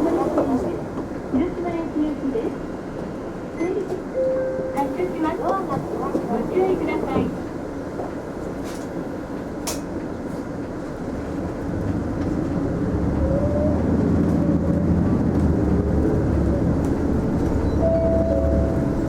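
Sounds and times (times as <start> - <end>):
bus engine running: 4.8 - 19.0.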